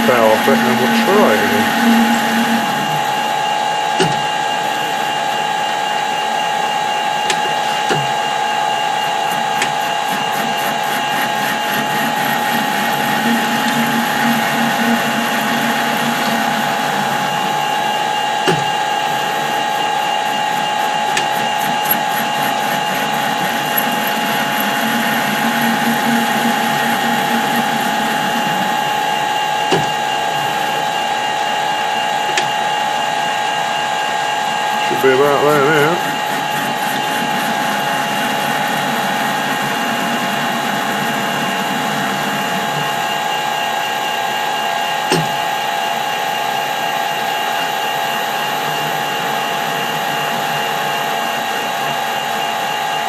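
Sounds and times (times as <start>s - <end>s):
metal lathe cutting steel: 0.0s - 53.0s.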